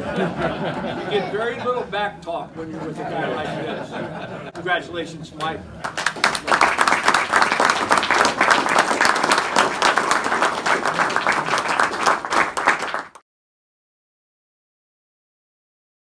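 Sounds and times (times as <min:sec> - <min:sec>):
audience applauding: 0:05.8 - 0:13.2.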